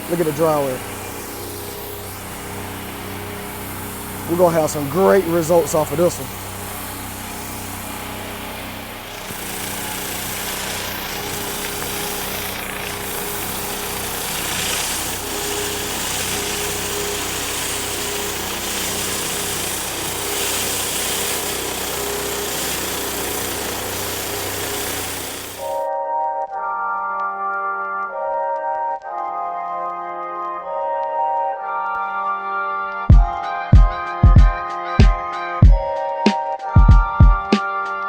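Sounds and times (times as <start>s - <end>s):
pressure washer engine running: 0.0s - 25.9s
water spraying onto concrete: 0.0s - 25.9s.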